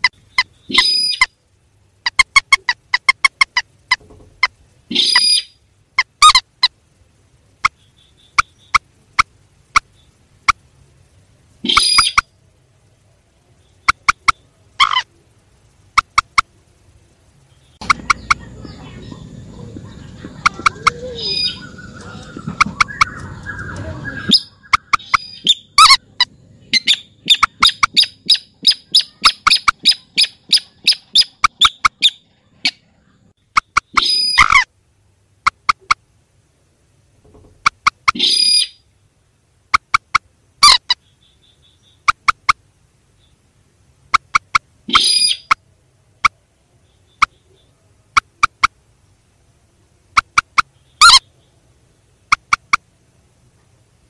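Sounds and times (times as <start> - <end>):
harsh bird calls: 0.0 - 1.4, 2.0 - 6.8, 11.6 - 12.4, 13.5 - 16.6, 17.4 - 34.7, 37.6 - 38.9, 39.8 - 42.6, 44.1 - 45.6, 50.2 - 52.8
recorded rail bird calls: 0.0 - 34.7, 37.2 - 39.0, 39.6 - 48.8, 50.1 - 53.0.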